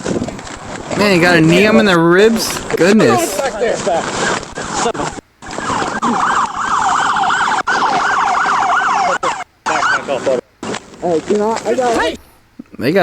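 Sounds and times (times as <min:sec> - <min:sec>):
police siren yelping: 0:04.3 - 0:10.4.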